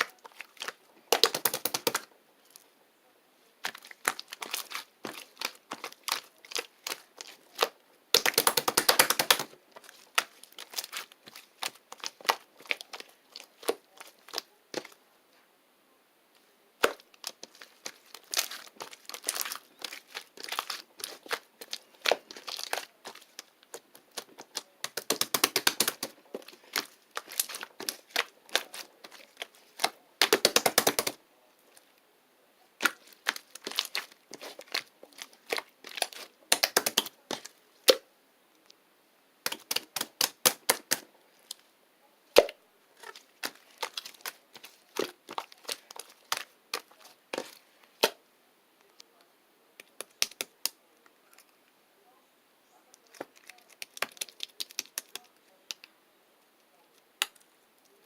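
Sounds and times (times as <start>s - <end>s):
crinkling: 0.0s - 2.7s, 3.6s - 15.4s, 16.3s - 32.0s, 32.8s - 38.8s, 42.4s - 48.2s, 52.9s - 58.0s
rapid clicking and tapping: 1.1s - 2.0s, 8.2s - 9.5s, 24.2s - 26.2s, 30.2s - 31.2s.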